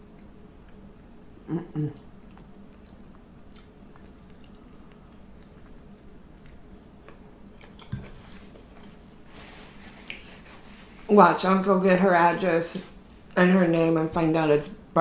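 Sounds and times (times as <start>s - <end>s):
person chewing food: 0.0s - 10.5s.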